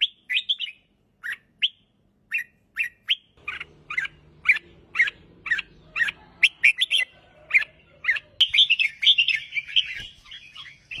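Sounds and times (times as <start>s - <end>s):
bulbul singing: 0.0s - 11.0s.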